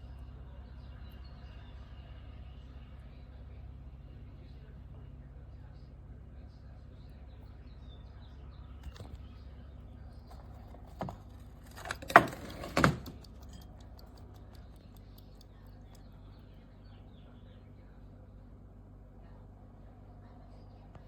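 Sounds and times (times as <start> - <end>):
low steady hum: 0.0 - 21.0
sharp clicks and knocks: 10.3 - 16.1.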